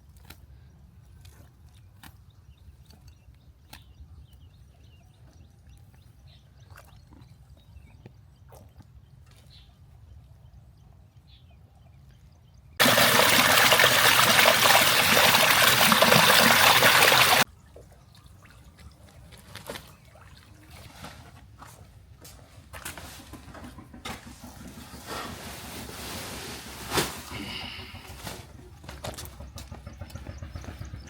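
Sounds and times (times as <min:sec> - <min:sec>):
water pouring: 0:12.8 - 0:17.4.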